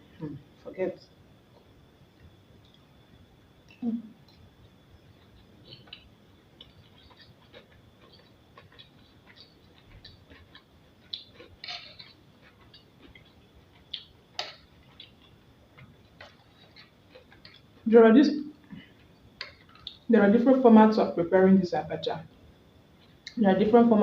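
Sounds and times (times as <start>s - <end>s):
faint chewing: 3.6s - 17.9s, 18.6s - 20.1s.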